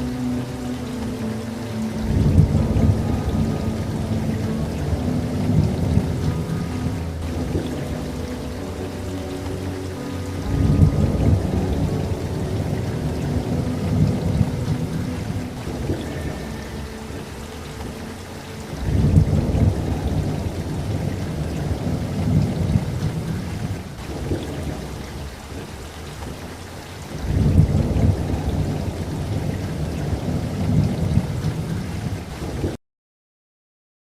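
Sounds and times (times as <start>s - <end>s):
steady rainfall: 0.0s - 32.8s
rolling thunder: 2.0s - 8.5s, 10.4s - 16.4s, 18.7s - 32.7s.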